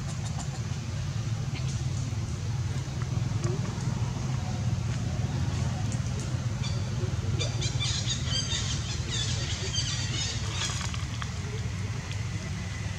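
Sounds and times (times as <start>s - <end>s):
steady low rumble: 0.0s - 12.9s
birds chirping: 4.5s - 11.6s.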